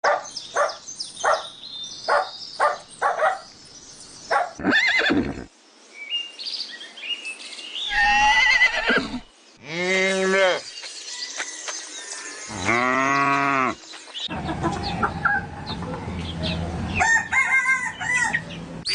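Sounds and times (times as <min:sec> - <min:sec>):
horse neighing: 0:04.6 - 0:05.5, 0:07.9 - 0:10.6
trembling horse whinny: 0:07.9 - 0:09.3.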